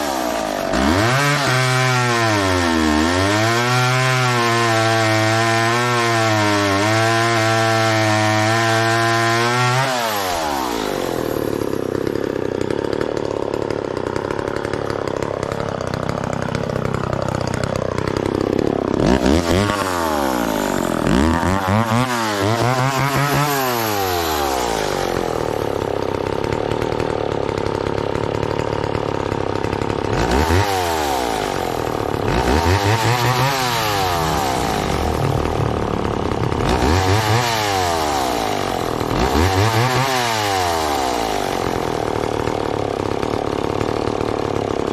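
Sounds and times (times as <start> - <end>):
chainsaw revving and idling: 0.0 - 44.9.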